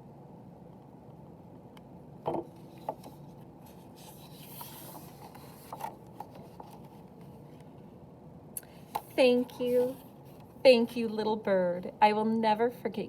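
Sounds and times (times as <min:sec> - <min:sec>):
low room hum: 0:00.0 - 0:13.0
paper page rustling: 0:02.6 - 0:07.6.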